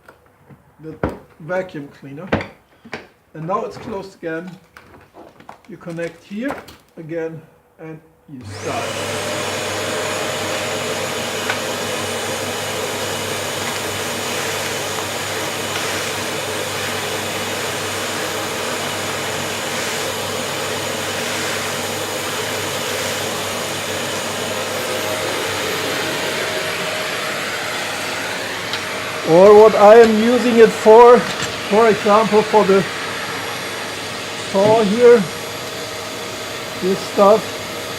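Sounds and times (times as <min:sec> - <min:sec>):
wet and dry vacuum cleaner running: 0:08.4 - 0:37.9.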